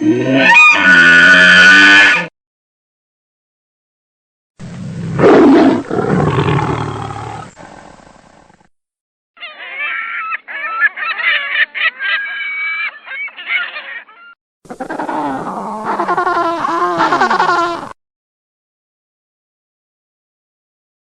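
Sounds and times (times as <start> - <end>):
big cat roaring: 4.8 - 8.2
flock of birds calling: 9.4 - 17.6.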